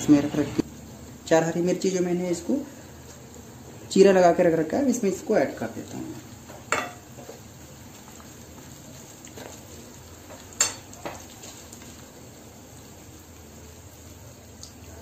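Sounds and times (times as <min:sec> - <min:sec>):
onions and spices sizzling in oil: 0:00.0 - 0:15.0
spoon clinking against pan: 0:06.7 - 0:07.0, 0:10.6 - 0:10.8.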